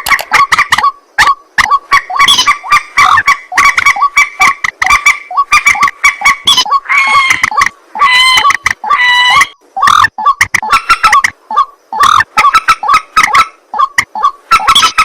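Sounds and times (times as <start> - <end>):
bird calling clipped notes: 0.0 - 1.8.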